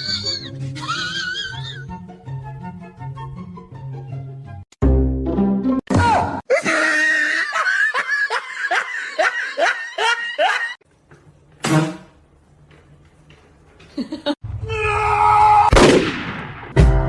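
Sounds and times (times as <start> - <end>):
person laughing hard: 6.5 - 10.8, 13.9 - 14.4.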